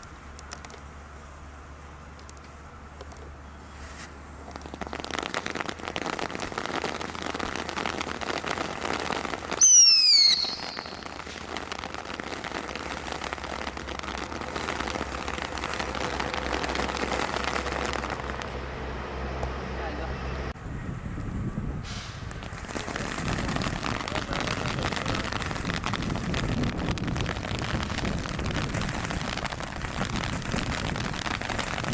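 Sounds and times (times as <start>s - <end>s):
fireworks crackling: 0.0s - 18.6s, 22.1s - 31.9s
firework whistle falling: 9.5s - 11.4s.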